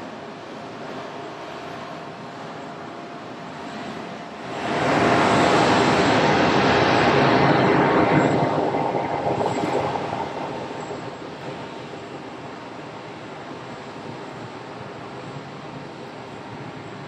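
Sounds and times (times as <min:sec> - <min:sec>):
jet airliner passing: 0:03.3 - 0:13.1.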